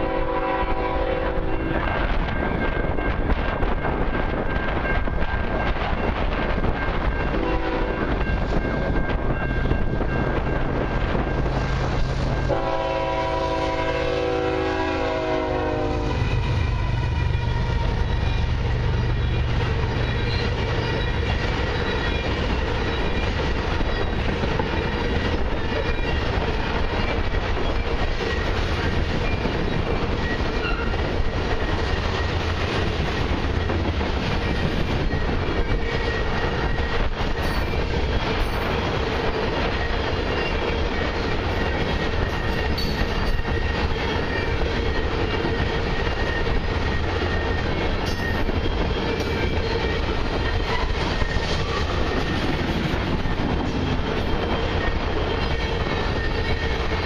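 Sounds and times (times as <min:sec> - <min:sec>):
locomotive horn blasts: 0:00.0 - 0:01.5, 0:07.4 - 0:08.0, 0:12.4 - 0:17.7
train wheels rumbling on rails: 0:00.0 - 0:57.0.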